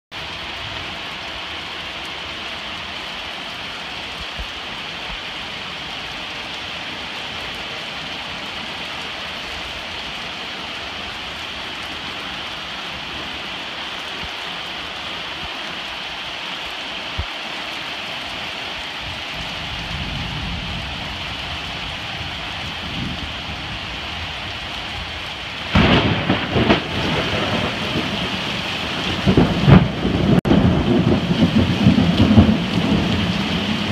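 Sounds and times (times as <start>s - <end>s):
heavy rain falling: 0.1s - 33.9s
thunder rumble: 19.4s - 33.9s.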